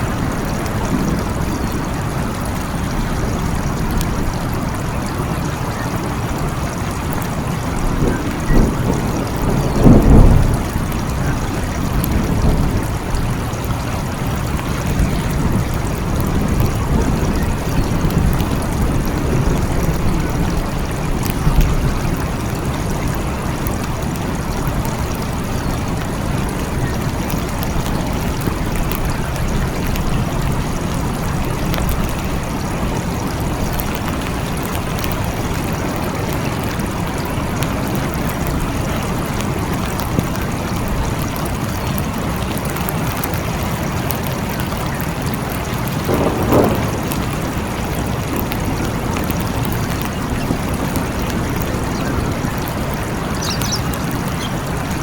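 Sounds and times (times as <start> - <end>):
distant thunder rumble: 0.0 - 41.5, 43.2 - 55.0
steady rain patter: 0.0 - 55.0.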